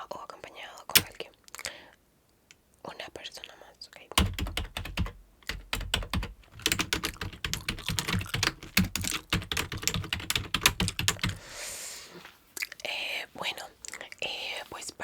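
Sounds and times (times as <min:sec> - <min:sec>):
typing on computer keyboard: 0:01.0 - 0:01.2, 0:04.2 - 0:11.4.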